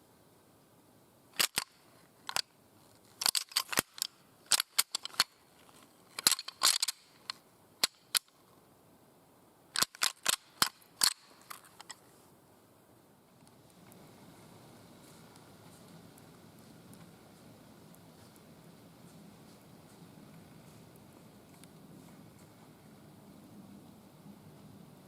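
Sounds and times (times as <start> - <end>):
sharp crackling clicks: 1.4 - 8.4, 9.7 - 12.0.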